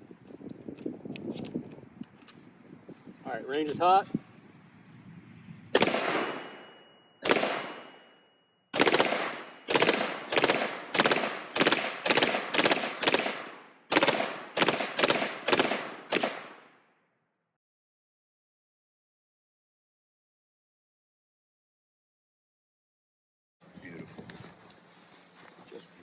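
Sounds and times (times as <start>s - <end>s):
rifle shots echoing: 5.8s - 16.8s.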